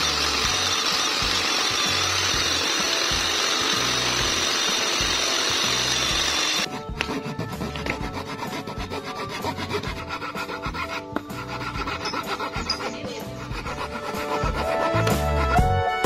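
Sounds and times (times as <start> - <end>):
hand tool scraping wood: 0.0 - 15.8
trim router cutting plywood: 0.0 - 15.8
background music with bass line: 5.0 - 16.0.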